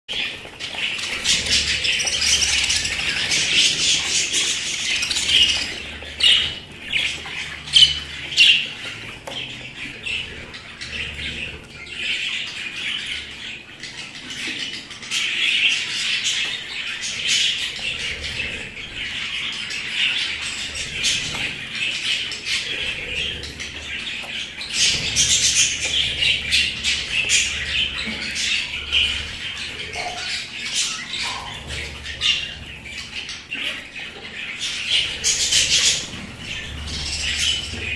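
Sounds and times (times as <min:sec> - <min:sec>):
budgerigars chattering and chirping: 0:00.1 - 0:37.9.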